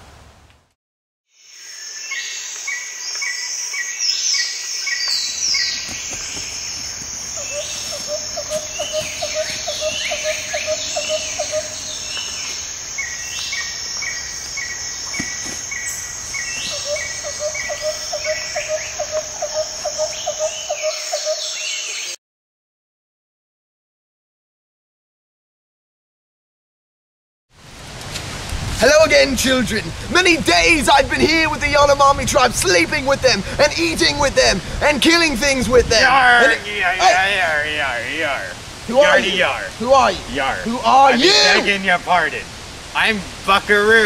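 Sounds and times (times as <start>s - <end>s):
high-pitched insect chorus: 1.4s - 22.1s
bird calls: 2.1s - 22.2s
rapid pulsing call: 5.4s - 22.0s.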